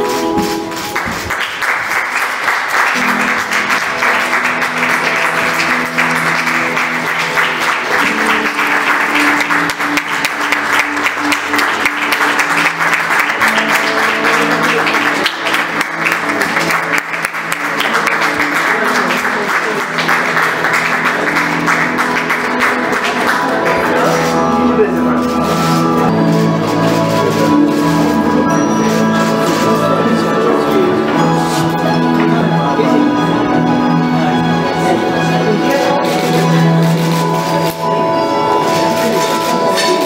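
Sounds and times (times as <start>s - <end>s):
music with held notes: 0.0s - 40.0s
audience applauding: 0.7s - 31.6s.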